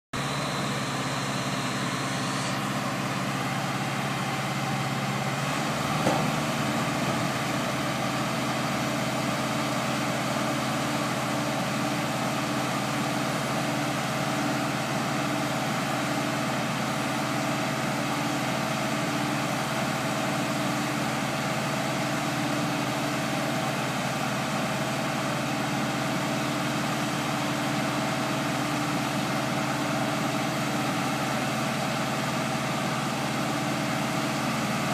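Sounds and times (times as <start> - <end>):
short knock: 6.0 - 6.4.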